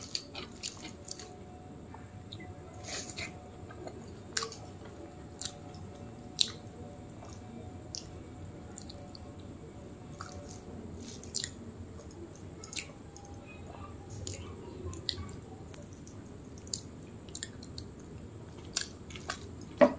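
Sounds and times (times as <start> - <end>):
wet chewing and lip smacks: 10.2 - 12.9, 15.0 - 19.7.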